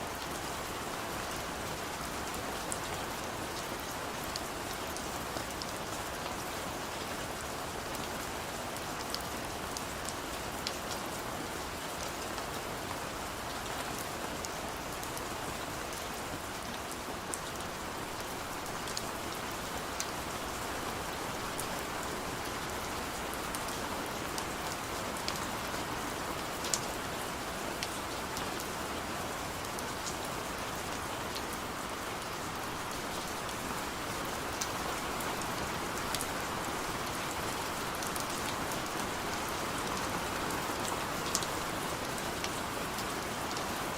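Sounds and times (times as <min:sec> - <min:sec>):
raindrops ticking on a surface: 0:30.9 - 0:43.7.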